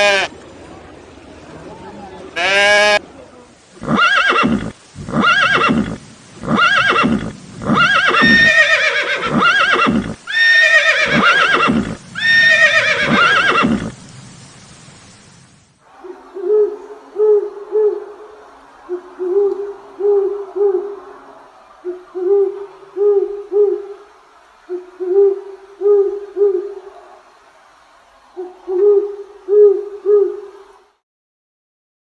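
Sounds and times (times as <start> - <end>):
bird hooting: 15.9 - 24.1, 24.7 - 27.3, 28.4 - 30.8.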